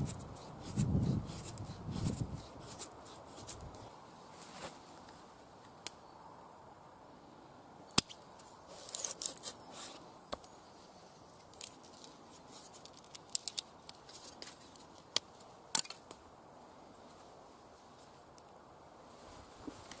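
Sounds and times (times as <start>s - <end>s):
knife scraping wood: 0.0s - 3.8s.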